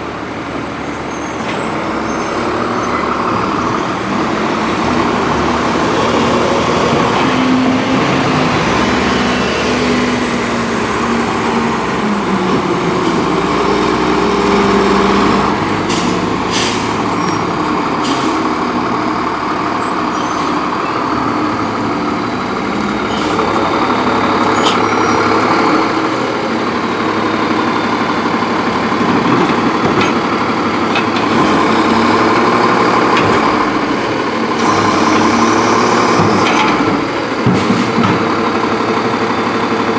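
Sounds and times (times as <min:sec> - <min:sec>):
diesel engine running: 0:00.0 - 0:39.9
air brake hisses: 0:15.9 - 0:17.1.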